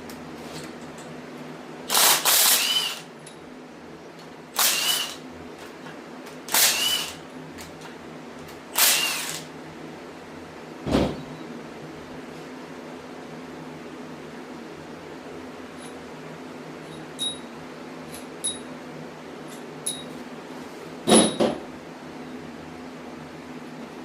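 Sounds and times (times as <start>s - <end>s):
shop fan humming: 0.0s - 24.0s
power tool whining: 1.9s - 3.1s, 4.6s - 5.2s, 6.5s - 7.2s, 8.8s - 9.5s.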